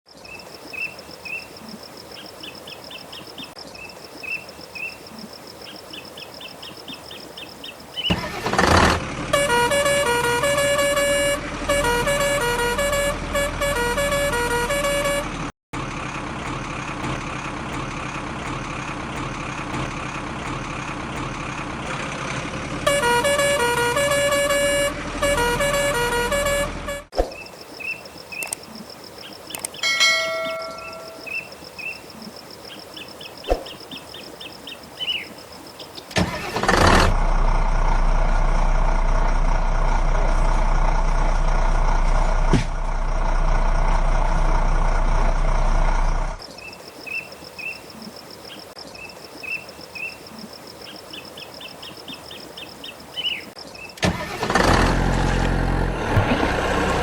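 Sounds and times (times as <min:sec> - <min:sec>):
vehicle rumble: 0:08.0 - 0:34.4, 0:35.3 - 0:46.5, 0:53.4 - 0:57.0
vehicle horn playing a tune: 0:09.3 - 0:15.5, 0:22.8 - 0:27.1, 0:30.2 - 0:31.3
faint chirping: 0:27.3 - 0:36.1.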